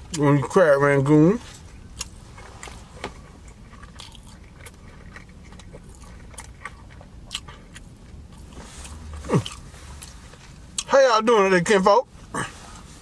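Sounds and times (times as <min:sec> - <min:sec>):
crunchy chewing: 0:01.8 - 0:10.9.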